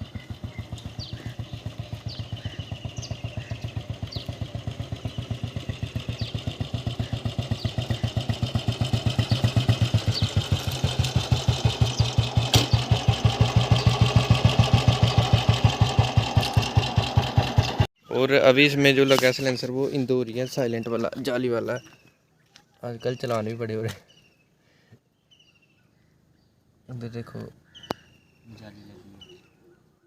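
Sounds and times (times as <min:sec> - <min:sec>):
motorcycle engine idling: 0:00.0 - 0:17.9.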